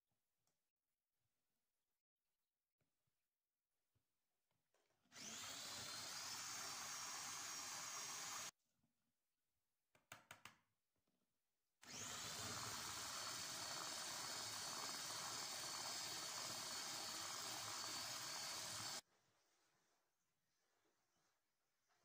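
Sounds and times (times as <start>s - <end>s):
appliance motor whining: 5.1s - 8.5s, 11.9s - 19.0s.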